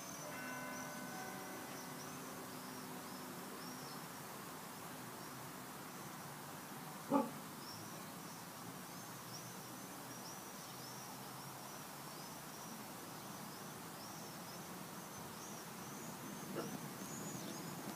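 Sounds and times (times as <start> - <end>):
dog bark: 7.1 - 7.4
bird chirping: 13.2 - 17.9.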